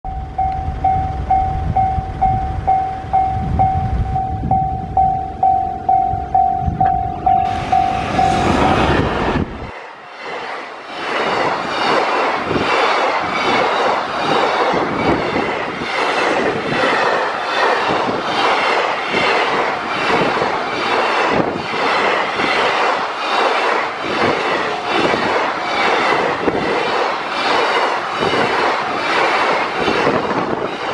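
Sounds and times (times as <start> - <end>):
level crossing bell ringing: 0.1 - 8.2
freight train wheels clattering: 0.4 - 30.9.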